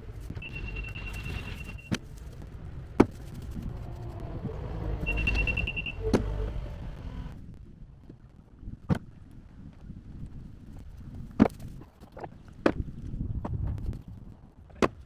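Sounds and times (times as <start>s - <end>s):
heavy machine engine rumbling: 0.0s - 7.5s
high steady tone: 0.3s - 1.9s, 3.6s - 7.3s.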